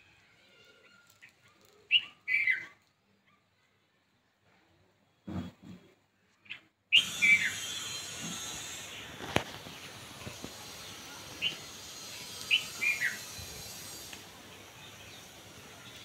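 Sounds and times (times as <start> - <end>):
birds chirping: 6.4 - 16.0
steady high outdoor hiss: 6.9 - 16.0.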